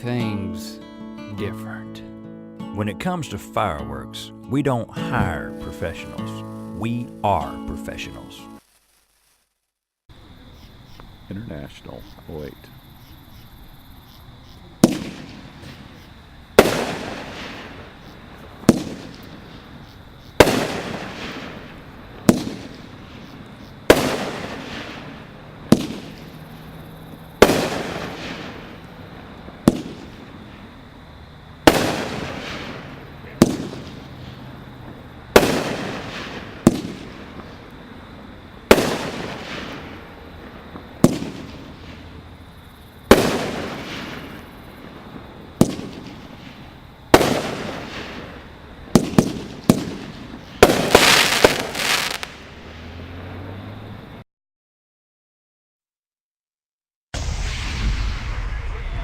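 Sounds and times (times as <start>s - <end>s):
fireworks bangs with rumbling echo: 14.8s - 30.9s, 31.6s - 52.7s, 57.2s - 59.0s.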